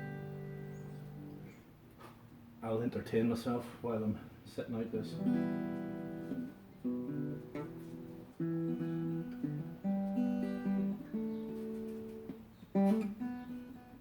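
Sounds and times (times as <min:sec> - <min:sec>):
acoustic guitar strumming: 0:00.0 - 0:01.7, 0:04.8 - 0:14.0.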